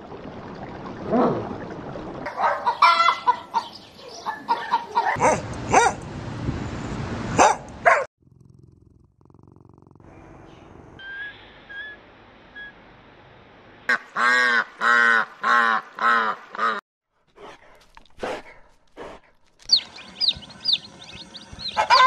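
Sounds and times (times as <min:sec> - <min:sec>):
dog barking: 0:02.3 - 0:03.4, 0:04.4 - 0:06.0, 0:07.4 - 0:08.1, 0:21.8 - 0:22.0
chickens clucking: 0:02.4 - 0:05.2, 0:19.7 - 0:22.0.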